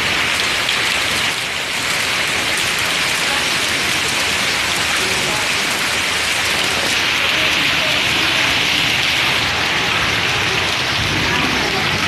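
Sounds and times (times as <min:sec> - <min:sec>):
heavy rain splashing on ground: 0:00.0 - 0:12.0.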